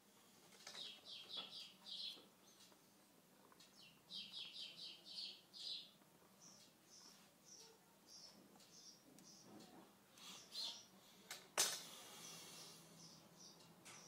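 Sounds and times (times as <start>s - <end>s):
faint bird chirping: 0.3s - 11.3s, 11.9s - 14.0s.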